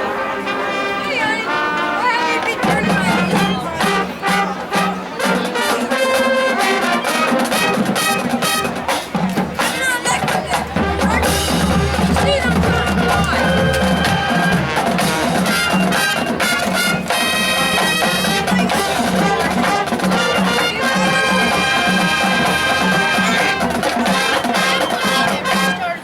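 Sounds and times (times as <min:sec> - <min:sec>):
marching drum beat: 0:06.1 - 0:25.8
brass sustained chords: 0:09.6 - 0:23.7.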